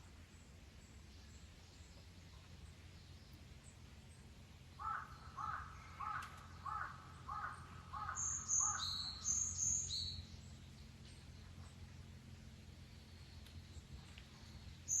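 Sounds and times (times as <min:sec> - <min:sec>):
bird short calls: 0:04.8 - 0:10.0.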